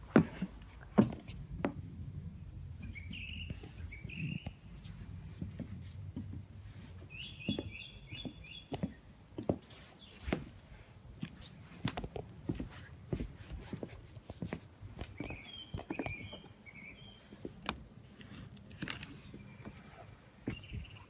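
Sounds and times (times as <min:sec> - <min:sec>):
songbird chirping: 0:02.8 - 0:05.0, 0:06.2 - 0:10.6, 0:15.0 - 0:17.6, 0:19.0 - 0:21.0.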